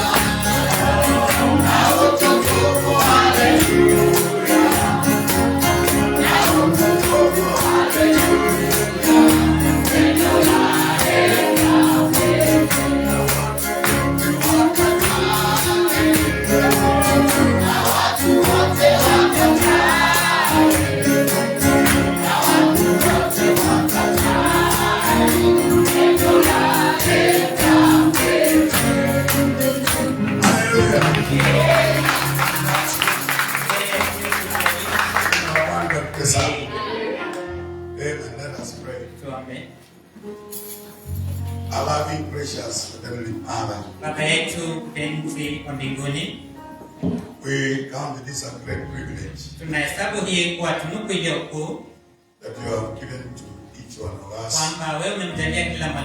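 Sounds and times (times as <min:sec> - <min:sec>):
group singing over a band: 0:00.0 - 0:33.0
tambourine shaking: 0:00.0 - 0:35.8, 0:40.4 - 0:41.9.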